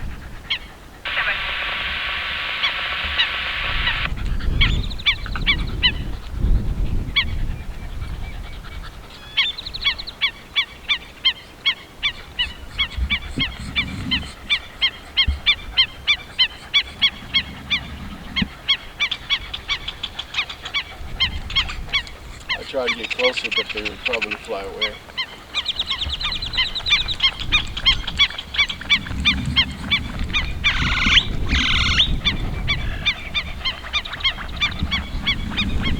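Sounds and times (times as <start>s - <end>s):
wind rumbling on microphone: 0.0s - 35.9s
avocets calling: 0.5s - 6.3s, 9.1s - 35.9s
steady rushing noise: 1.1s - 4.2s.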